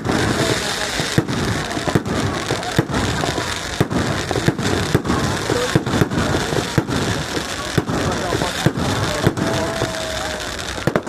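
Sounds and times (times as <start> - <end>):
fireworks crackling and popping: 0.0 - 11.0.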